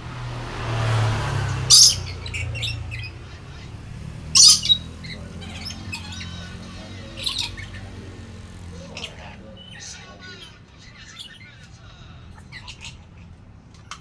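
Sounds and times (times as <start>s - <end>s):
parrot squawking: 1.4s - 13.4s
parrot chirps: 1.5s - 3.2s, 4.3s - 13.3s.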